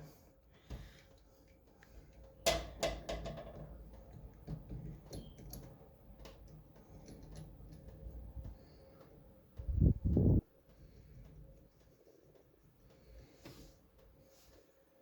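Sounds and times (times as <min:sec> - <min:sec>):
tools clicking and tapping: 0:00.7 - 0:09.1.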